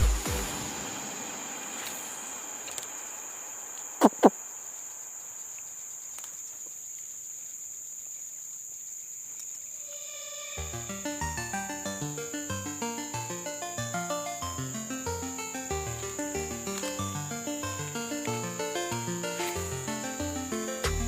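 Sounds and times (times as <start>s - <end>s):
downward sweeping calls: 1.6s - 5.5s
insects trilling: 1.8s - 21.0s.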